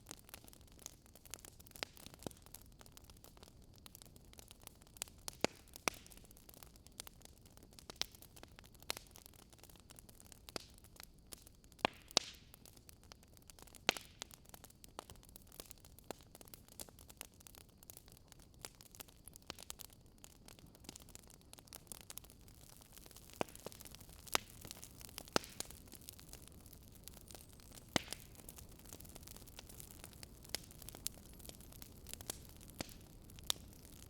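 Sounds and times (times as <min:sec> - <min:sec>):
campfire crackling and snapping: 0:00.0 - 0:34.0
faint steady hiss: 0:00.0 - 0:34.0.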